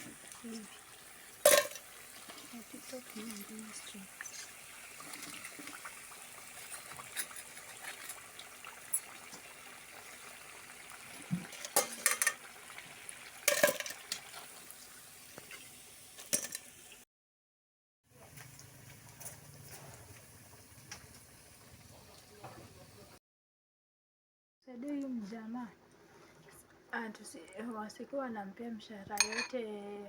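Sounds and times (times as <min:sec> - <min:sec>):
dishes clinking: 0:01.5 - 0:01.8, 0:11.5 - 0:12.4, 0:13.5 - 0:14.1, 0:29.2 - 0:29.6.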